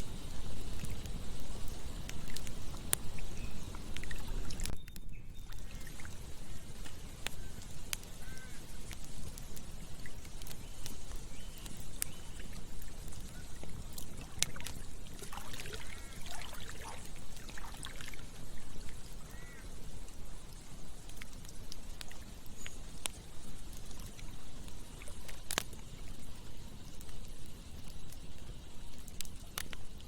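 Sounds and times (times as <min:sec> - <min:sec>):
campfire crackling and popping: 0:00.0 - 0:30.0
running water: 0:12.4 - 0:19.8
water gurgling: 0:13.6 - 0:19.6.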